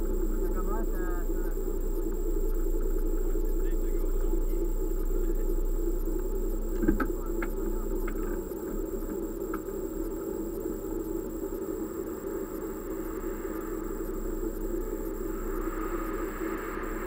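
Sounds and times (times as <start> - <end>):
car engine idling: 0.0 - 17.0
faint clicks: 4.4 - 11.1.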